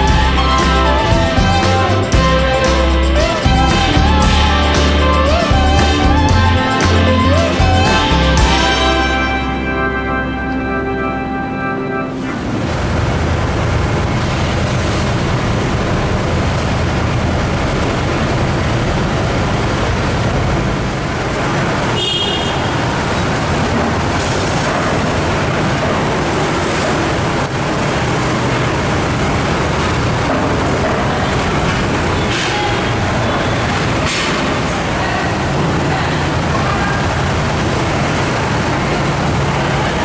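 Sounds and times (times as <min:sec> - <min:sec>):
short high-pitched tone: 0:00.0 - 0:13.0
vehicle engine rumbling: 0:00.0 - 0:21.9
road noise: 0:00.0 - 0:40.0.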